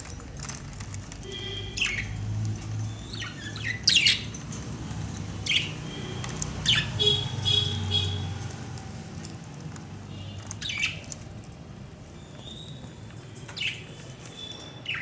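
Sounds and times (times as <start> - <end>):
budgerigars squawking and chirping: 1.4 - 2.2, 2.9 - 4.3, 5.4 - 8.2.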